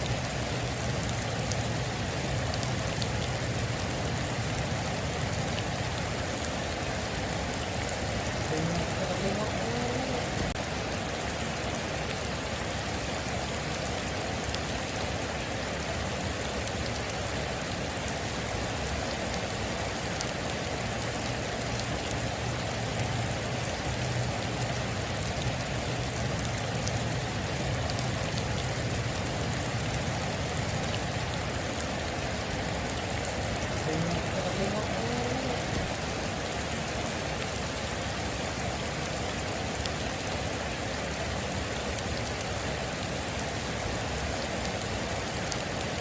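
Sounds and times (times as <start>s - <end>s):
individual raindrop ticks: 0.0s - 4.7s, 18.9s - 38.1s
heavy rain on a metal roof: 0.0s - 46.0s.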